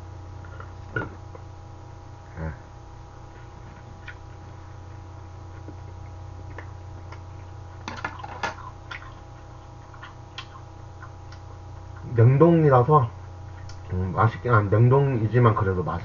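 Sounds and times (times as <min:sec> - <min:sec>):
steady low hum: 0:00.0 - 0:16.0
person chewing: 0:05.5 - 0:12.1.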